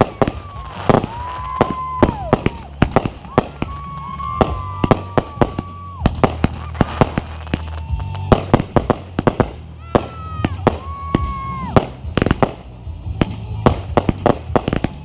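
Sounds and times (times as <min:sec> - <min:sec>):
firework whistles: 0:00.0 - 0:09.4, 0:13.2 - 0:15.0
fireworks bangs and crackles: 0:00.0 - 0:15.0.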